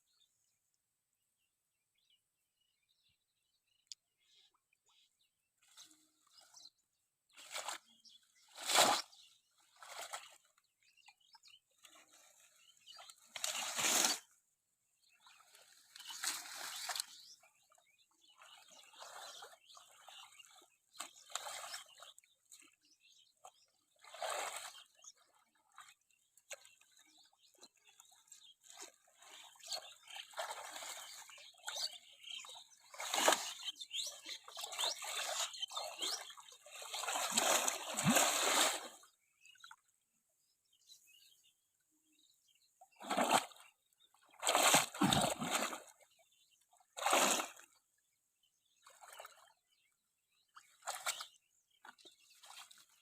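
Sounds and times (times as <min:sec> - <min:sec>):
water splashing: 0:28.7 - 0:39.1, 0:43.0 - 0:43.6, 0:44.3 - 0:46.0, 0:47.0 - 0:47.7.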